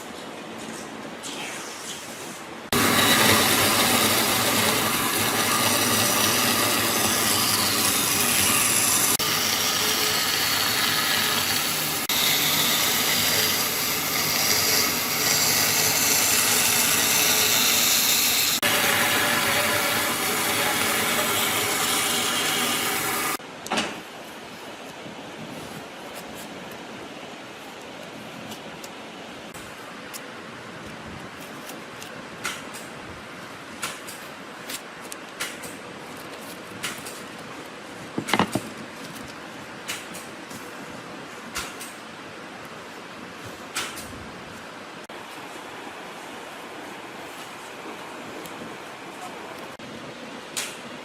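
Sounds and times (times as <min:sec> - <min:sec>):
power tool whining on wood: 0:02.7 - 0:23.4.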